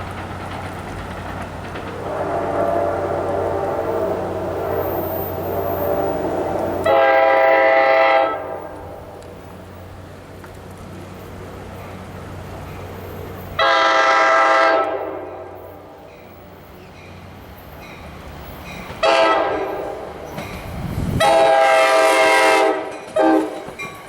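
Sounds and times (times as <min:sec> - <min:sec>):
train air horn blasts: 0:02.0 - 0:09.2, 0:13.6 - 0:15.9, 0:19.0 - 0:20.1, 0:21.2 - 0:23.6.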